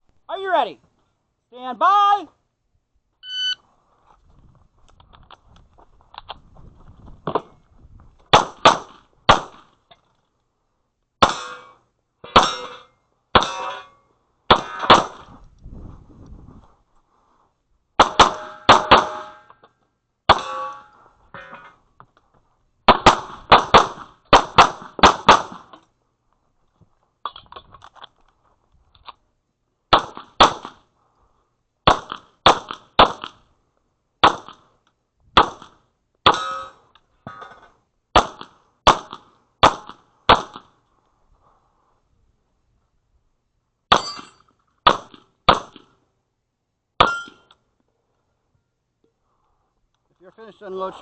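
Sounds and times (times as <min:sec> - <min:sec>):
pistol shots with metallic ring: 0:11.2 - 0:15.1, 0:18.0 - 0:19.6, 0:20.3 - 0:20.9, 0:36.2 - 0:36.8, 0:43.9 - 0:45.8, 0:47.0 - 0:47.5.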